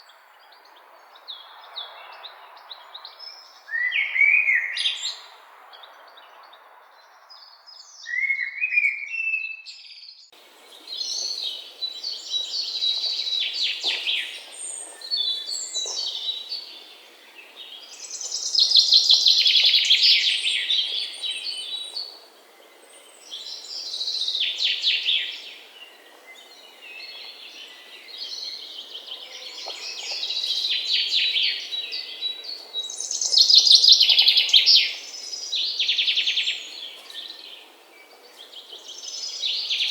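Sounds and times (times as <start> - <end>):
faint background hiss: 10.3 - 39.9.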